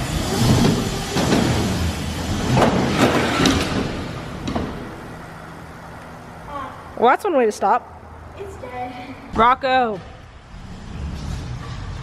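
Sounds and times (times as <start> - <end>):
dirt bike engine clattering: 0.0 - 6.1
sharp knocks and thumps: 0.3 - 5.1.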